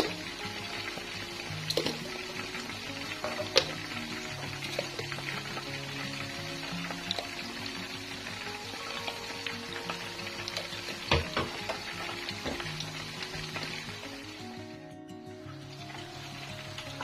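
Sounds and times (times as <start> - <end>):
background music: 0.0 - 17.0
food sizzling in a wok: 0.0 - 17.0.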